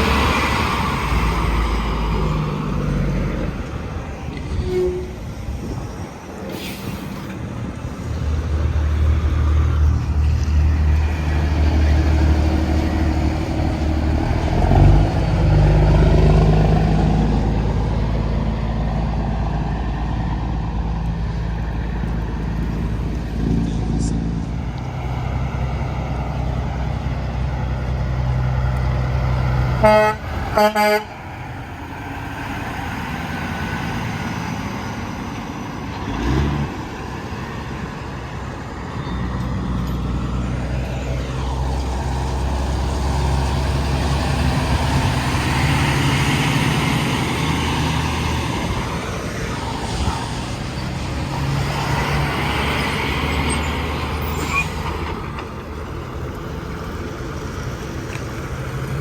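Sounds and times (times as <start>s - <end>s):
trucks passing on highway: 0.0s - 59.0s
truck horn blasts: 29.8s - 31.2s.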